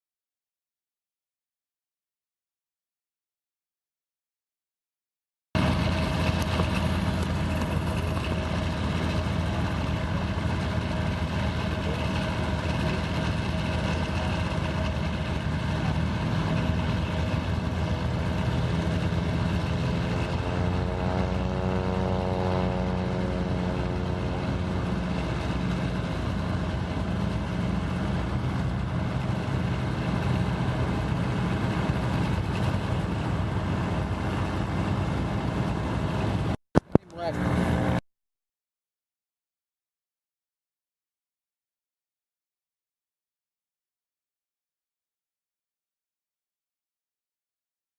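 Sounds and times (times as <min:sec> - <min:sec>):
engine drone: 0:05.6 - 0:38.0.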